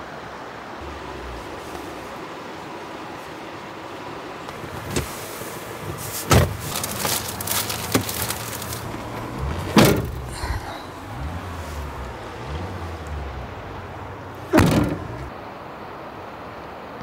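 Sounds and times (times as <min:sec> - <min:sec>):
steady background hiss: 0:00.0 - 0:17.0
clattering and rustling: 0:04.5 - 0:13.3, 0:14.4 - 0:15.3
handling noise thumps: 0:05.8 - 0:10.5, 0:11.1 - 0:15.3.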